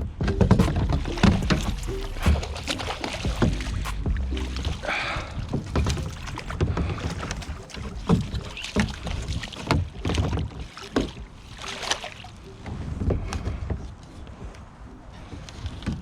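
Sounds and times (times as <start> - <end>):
low rumble: 0.0 - 6.8
knocks and bumps on a kayak: 0.0 - 12.0.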